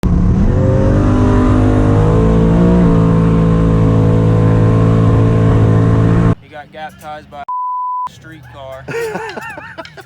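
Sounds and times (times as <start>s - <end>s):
race car engine at high revs: 0.0s - 6.4s.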